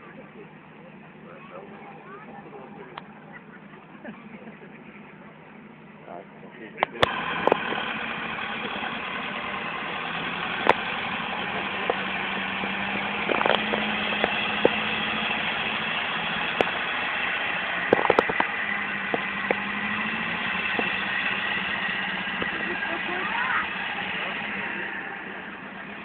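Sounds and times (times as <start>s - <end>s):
truck engine running: 0.0s - 26.0s
sharp clicks or knocks: 13.2s - 15.1s, 17.8s - 19.7s.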